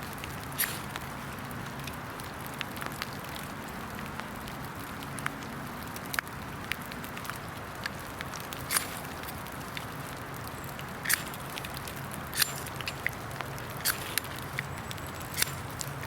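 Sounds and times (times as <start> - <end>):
rain falling in woodland: 0.0 - 16.0
sharp ticks: 7.2 - 16.0.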